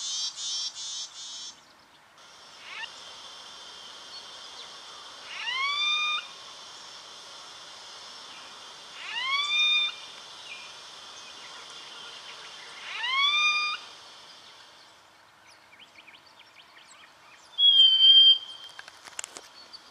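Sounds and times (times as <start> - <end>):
bird calling: 2.2 - 14.8.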